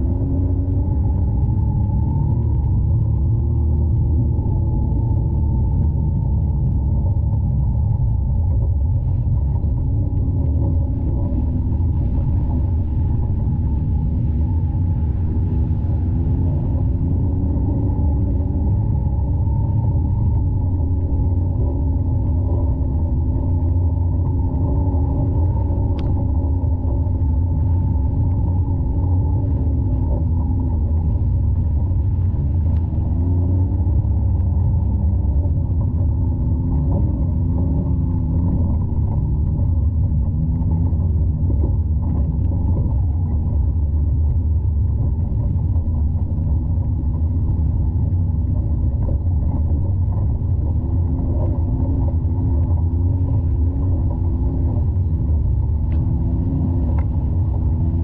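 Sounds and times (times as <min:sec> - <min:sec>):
muffled engine running: 0:00.0 - 0:58.0.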